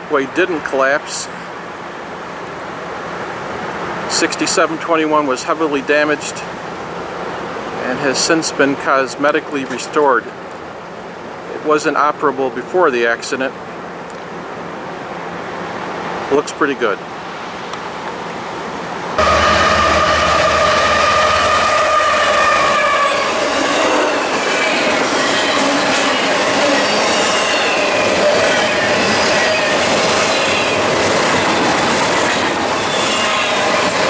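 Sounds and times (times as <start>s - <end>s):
train engine hum: 17.0s - 34.0s
train wheels squealing: 32.2s - 34.0s.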